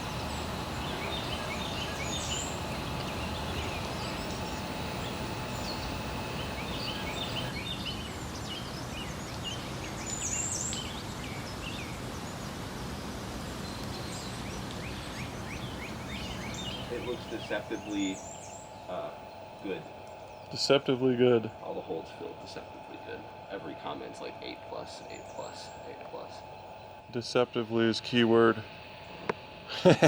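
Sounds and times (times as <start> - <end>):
outdoor background rush: 0.0 - 30.0
small birds chirping: 0.0 - 30.0.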